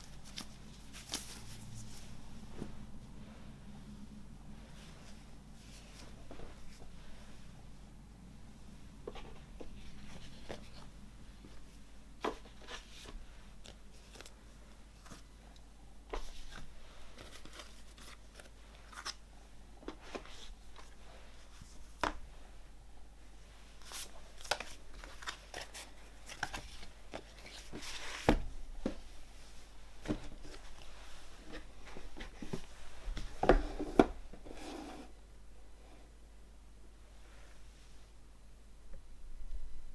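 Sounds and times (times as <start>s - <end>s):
card and plastic packaging rustling: 0.0s - 2.4s, 16.1s - 19.2s, 23.8s - 29.1s.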